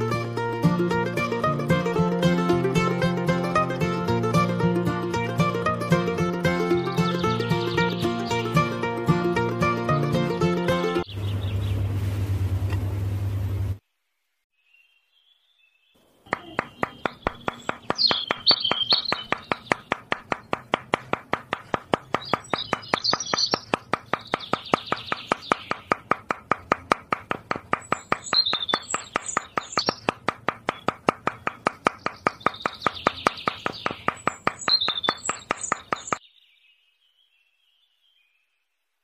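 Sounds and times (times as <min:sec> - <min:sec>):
music: 0:00.0 - 0:11.0
birds chirping: 0:06.6 - 0:08.9, 0:10.8 - 0:12.0, 0:14.6 - 0:26.7, 0:27.4 - 0:38.7
low steady hum: 0:11.1 - 0:13.8.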